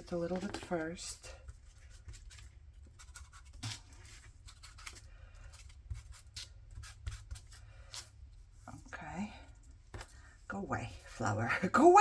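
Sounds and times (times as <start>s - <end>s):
paper scratching and rustling: 0.0s - 8.1s.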